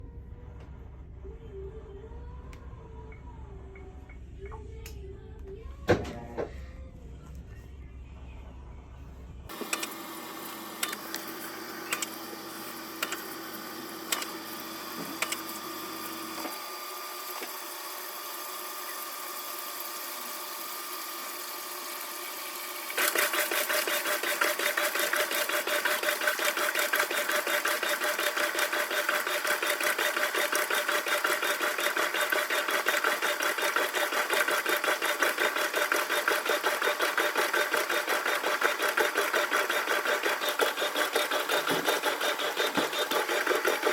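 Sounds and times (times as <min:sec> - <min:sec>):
washing machine running: 0:09.4 - 0:43.9
sharp clicks: 0:14.1 - 0:14.3.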